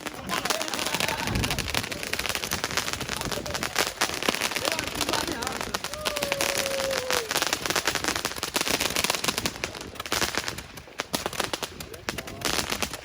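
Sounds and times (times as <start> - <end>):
fireworks crackling pops: 0.0 - 13.0.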